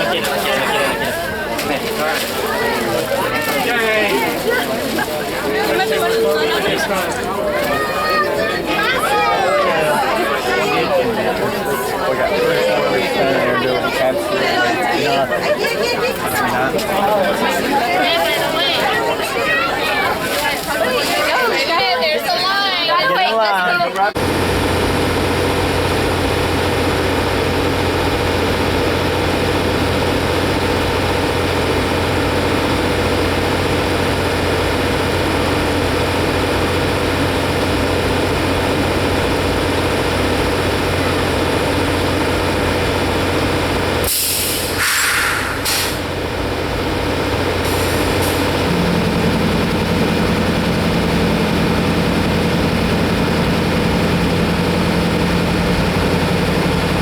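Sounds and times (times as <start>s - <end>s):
diesel locomotive idling: 0.0s - 23.4s, 24.0s - 57.0s
air hissing bursts: 44.0s - 46.1s.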